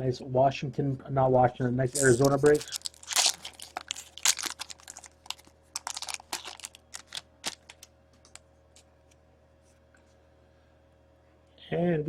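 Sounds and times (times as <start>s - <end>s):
trading cards clicking: 2.0s - 8.4s.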